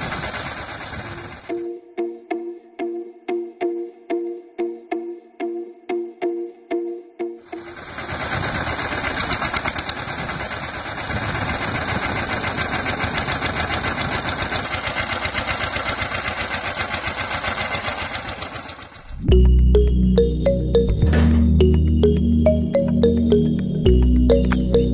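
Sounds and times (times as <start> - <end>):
small electric motor rattling: 0.0 - 1.5, 7.6 - 19.0.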